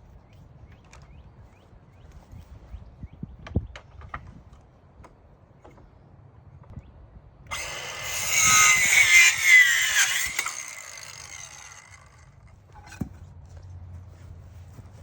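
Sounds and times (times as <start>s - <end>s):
circular saw cutting wood: 7.5s - 12.3s.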